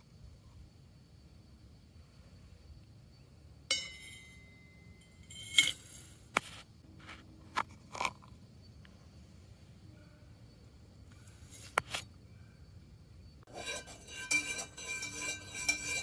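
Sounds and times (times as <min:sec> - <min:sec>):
ringing clink of glass: 0:03.7 - 0:05.8.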